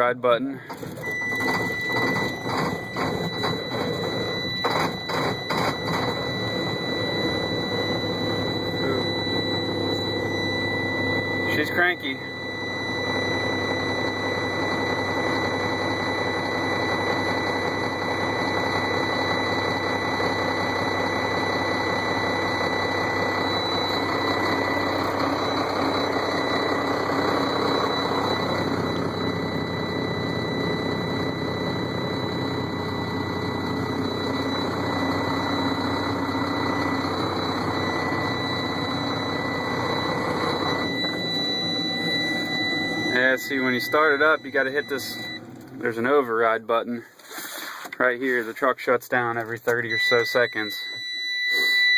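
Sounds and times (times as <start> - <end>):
high-pitched warning buzzer: 0.6 - 46.3, 49.7 - 51.9
diesel truck engine running: 22.2 - 45.9.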